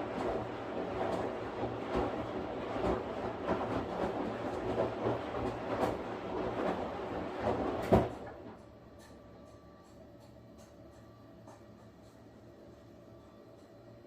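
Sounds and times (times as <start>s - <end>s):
washing machine knocks: 0.0s - 8.3s
washing machine churning: 0.0s - 14.0s.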